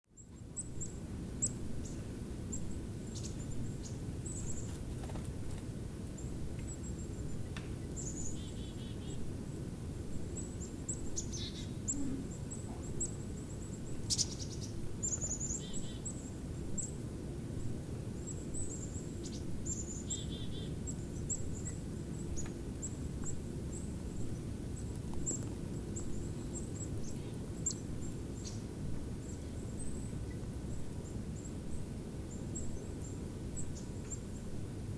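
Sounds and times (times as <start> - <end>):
small birds calling: 0.2 - 5.3, 6.1 - 9.3, 10.1 - 17.0, 17.6 - 34.6
low background rumble: 0.2 - 34.9
bird trills: 13.9 - 16.2.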